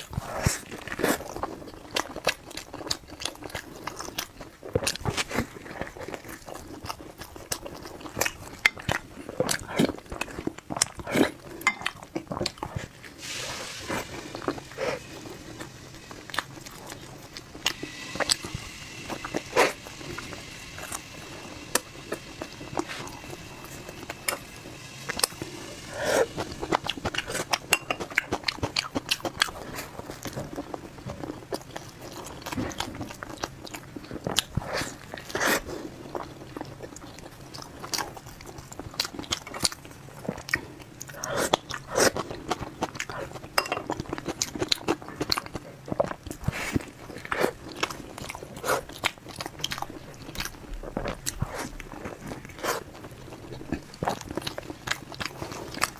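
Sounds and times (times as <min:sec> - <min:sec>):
person eating and chewing: 0:00.0 - 0:55.9.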